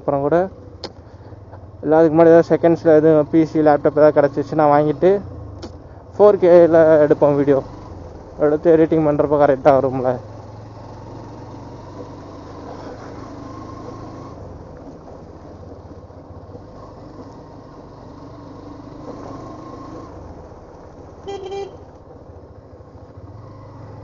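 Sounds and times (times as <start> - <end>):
road noise: 0.0 - 24.0
motorcycle engine running: 0.1 - 24.0
vehicle horn beep: 21.2 - 21.9.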